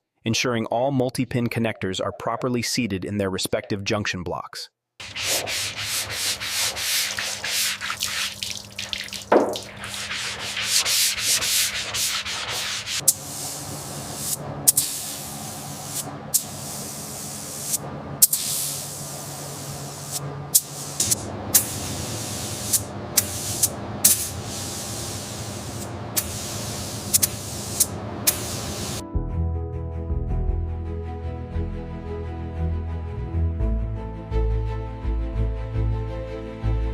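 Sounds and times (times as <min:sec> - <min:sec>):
abrasive sanding strokes: 0:05.0 - 0:17.8.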